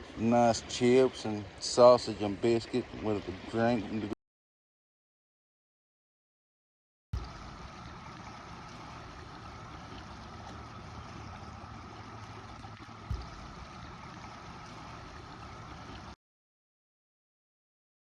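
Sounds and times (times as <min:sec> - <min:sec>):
faint steady hum: 0:07.2 - 0:16.2
thump: 0:13.1 - 0:13.4.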